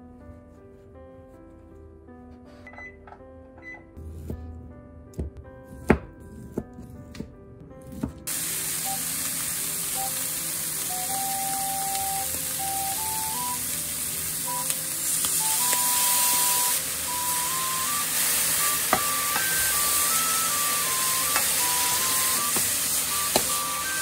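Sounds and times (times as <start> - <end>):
light background music: 0.0 - 24.0
food sizzling in a frying pan: 8.3 - 24.0.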